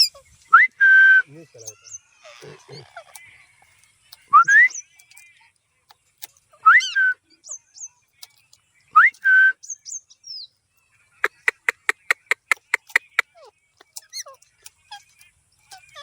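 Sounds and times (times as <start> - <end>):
parrot high chirps: 0.0 - 0.3, 1.7 - 3.4, 12.3 - 16.0
parrot sharp clicking notes: 11.2 - 14.8.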